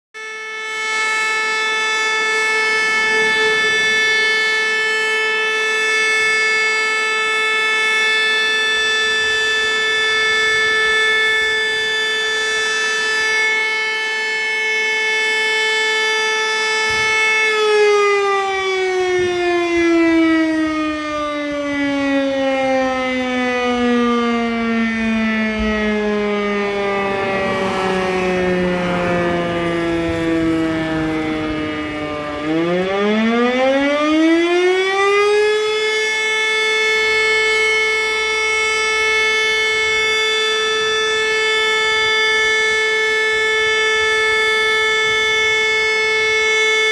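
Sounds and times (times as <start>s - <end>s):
fire alarm siren winding down: 0.2s - 46.9s.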